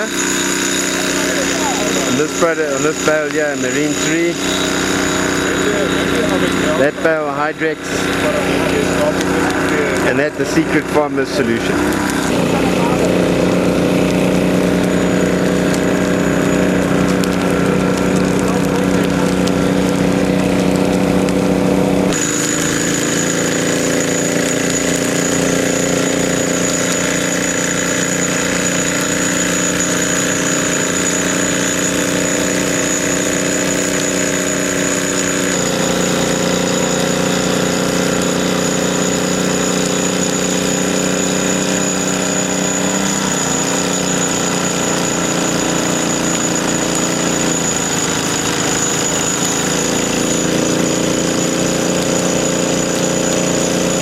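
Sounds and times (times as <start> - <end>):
small engine running: 0.0 - 54.0
thin high whistle: 3.6 - 6.5.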